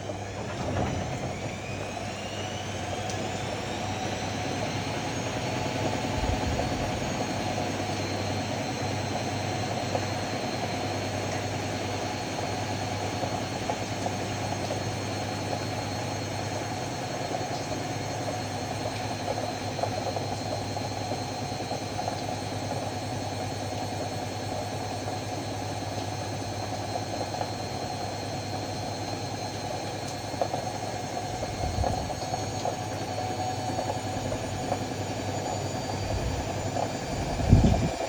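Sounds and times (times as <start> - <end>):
washer-dryer motor hum: 0.0 - 38.0
low rumble: 6.0 - 7.8.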